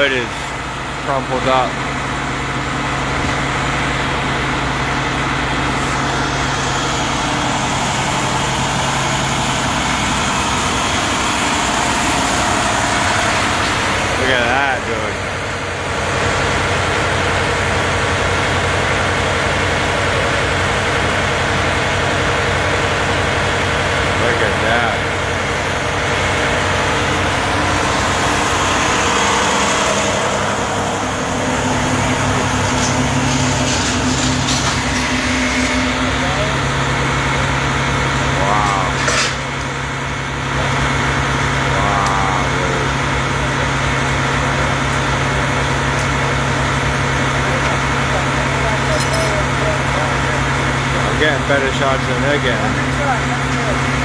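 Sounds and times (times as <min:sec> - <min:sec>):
large vehicle engine idling: 0:00.0 - 0:54.0
distant voice: 0:35.2 - 0:39.6, 0:40.4 - 0:45.7.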